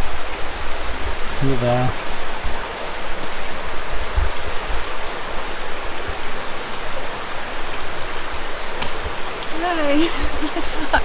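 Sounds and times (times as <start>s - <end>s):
river water over rocks: 0.0s - 11.0s.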